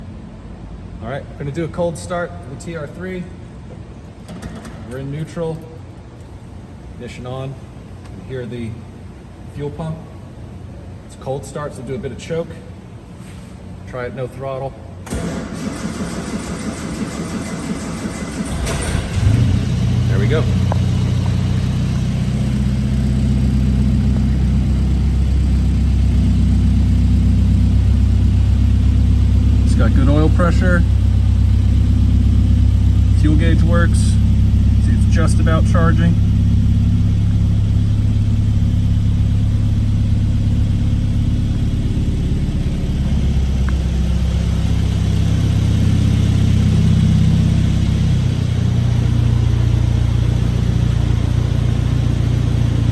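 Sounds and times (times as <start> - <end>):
car engine idling: 5.2 - 52.9.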